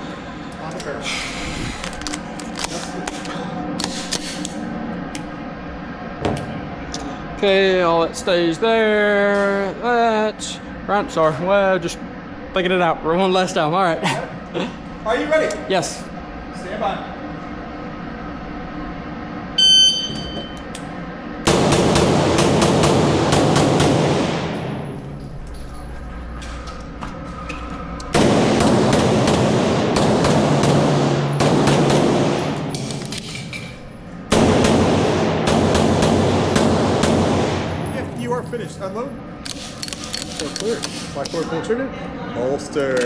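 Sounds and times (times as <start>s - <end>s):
steady low hum: 0.0s - 43.0s
shot timer beep: 19.6s - 20.6s
rapid pistol shots: 21.5s - 24.8s, 28.1s - 33.2s, 34.3s - 37.9s.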